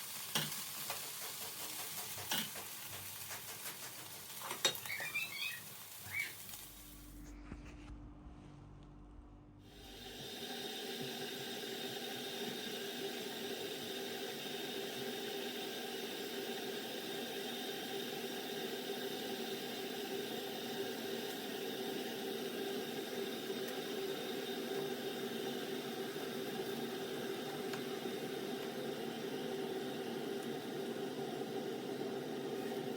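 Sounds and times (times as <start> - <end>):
steady hum tones: 6.8 - 10.8.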